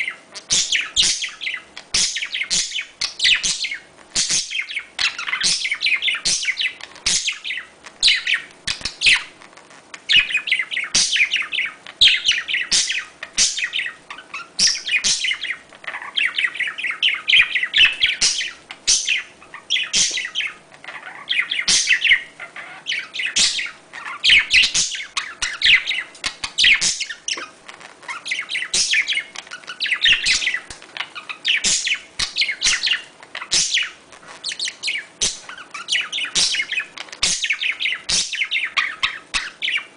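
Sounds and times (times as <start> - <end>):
budgerigars chattering: 0.0 - 9.4, 10.1 - 39.9.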